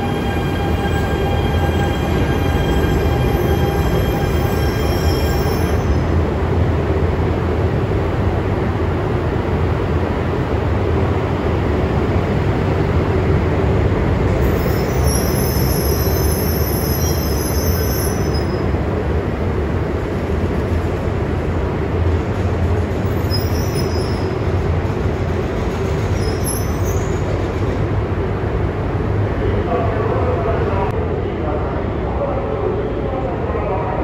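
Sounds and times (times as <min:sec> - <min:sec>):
high-pitched train squeals: 0:00.0 - 0:06.1, 0:14.4 - 0:18.7, 0:23.1 - 0:24.4, 0:25.7 - 0:27.4
train rumbling slowly: 0:00.0 - 0:34.0.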